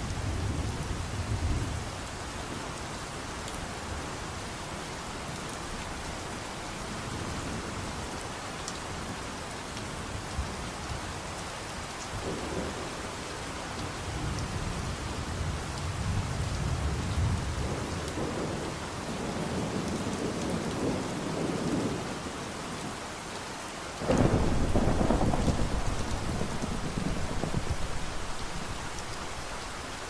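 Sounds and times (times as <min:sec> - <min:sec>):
steady rain: 0:00.0 - 0:30.0
loud thunderclap: 0:24.0 - 0:28.8
rolling thunder: 0:24.0 - 0:29.8.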